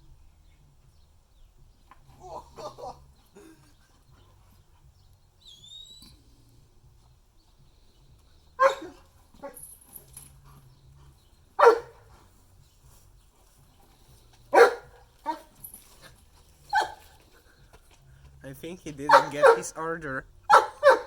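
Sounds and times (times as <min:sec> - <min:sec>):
dog barking: 0:02.2 - 0:03.1, 0:08.6 - 0:09.6, 0:11.6 - 0:12.2, 0:14.5 - 0:15.6, 0:16.7 - 0:17.1, 0:19.1 - 0:19.8, 0:20.5 - 0:21.0.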